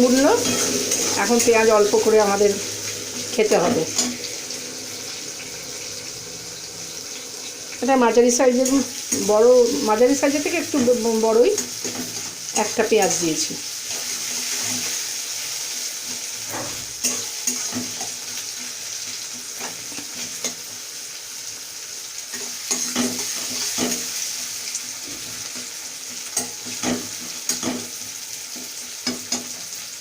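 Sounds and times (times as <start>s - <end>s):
onion sizzling in oil: 0.0s - 30.0s
spoon scraping against pan: 0.2s - 2.5s, 3.1s - 4.4s, 16.0s - 20.6s.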